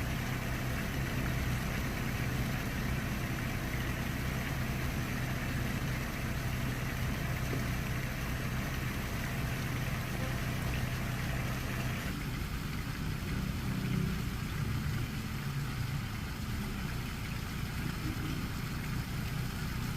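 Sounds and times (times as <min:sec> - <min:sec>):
engine running with low hum: 0:00.0 - 0:19.9.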